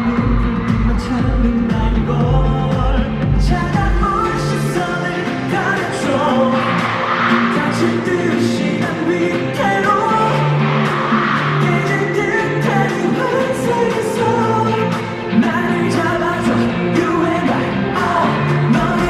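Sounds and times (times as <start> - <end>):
deep beat: 0.0 - 6.2
man singing: 0.0 - 19.0
pop backing track: 0.0 - 19.0.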